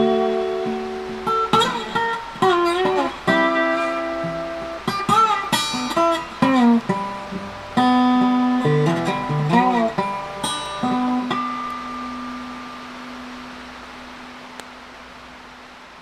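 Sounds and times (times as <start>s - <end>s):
acoustic guitar plucked notes: 0.0s - 14.6s.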